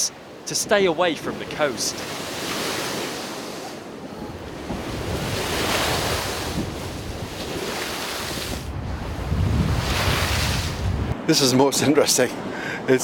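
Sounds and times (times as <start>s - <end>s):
sea waves breaking: 0.0s - 12.8s
wind buffeting microphone: 3.8s - 12.7s.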